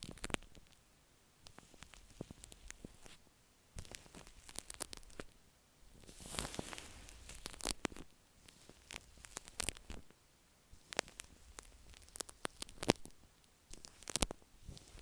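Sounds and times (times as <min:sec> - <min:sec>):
hissing rustle: 0:06.0 - 0:07.8
shaving cream squishing on microphone: 0:10.8 - 0:13.1, 0:13.7 - 0:15.0.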